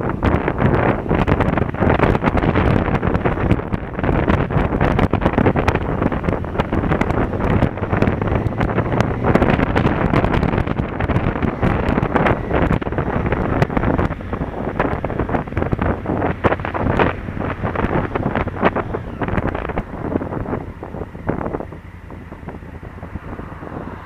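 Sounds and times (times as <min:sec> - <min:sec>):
motorcycle engine running low: 0:00.0 - 0:24.0
wind buffeting microphone: 0:00.0 - 0:24.0.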